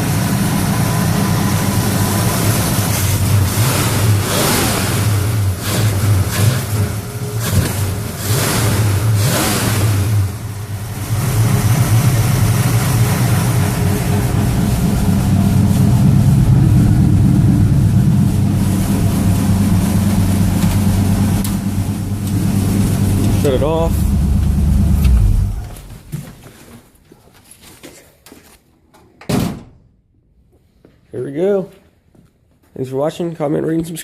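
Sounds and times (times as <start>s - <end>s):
car engine surging and idling: 0.0s - 26.4s.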